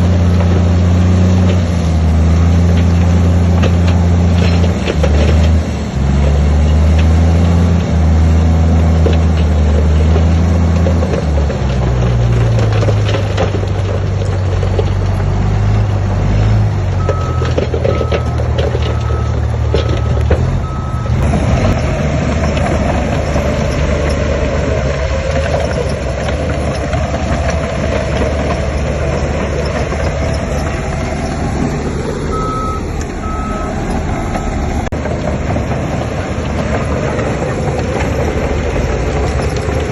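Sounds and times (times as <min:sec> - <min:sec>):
heavy machinery engine running: 0:00.0 - 0:39.9
reversing alarm beeping: 0:17.0 - 0:21.8, 0:32.2 - 0:34.8.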